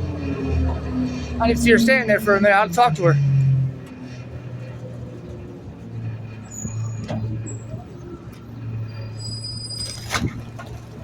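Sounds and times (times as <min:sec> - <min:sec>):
truck engine humming: 0:00.0 - 0:11.0
high thin squeals: 0:09.0 - 0:10.3.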